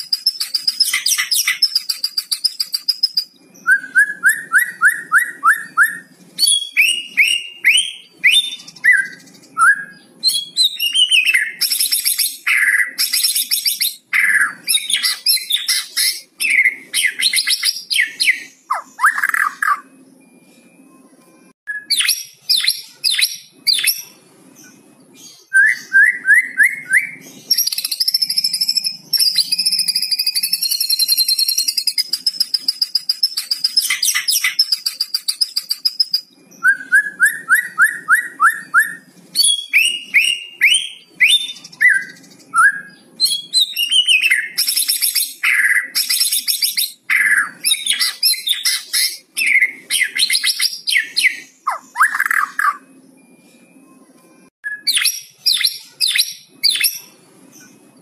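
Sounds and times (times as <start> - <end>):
songbird singing varied song: 21.7 - 53.3.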